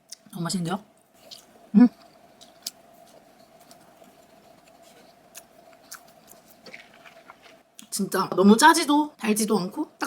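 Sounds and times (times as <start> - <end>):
faint steady hum: 0.0 - 10.0
crisp crackles of eating cookie: 1.2 - 7.9.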